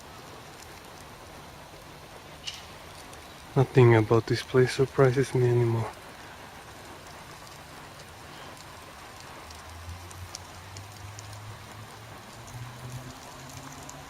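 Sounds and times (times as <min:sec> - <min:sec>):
steady background hiss: 0:00.0 - 0:14.0
light ticks: 0:06.2 - 0:14.0.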